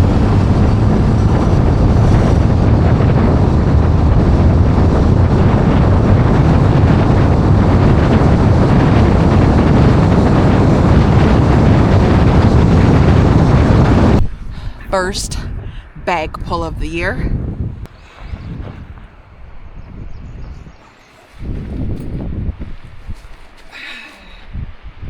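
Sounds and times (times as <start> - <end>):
faint engine hum: 0.0 - 16.2
road and wind noise: 0.0 - 25.0.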